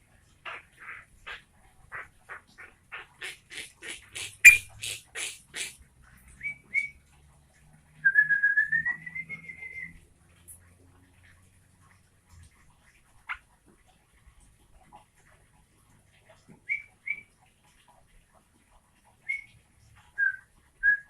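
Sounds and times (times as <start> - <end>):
bird singing chattering notes: 4.2 - 5.0.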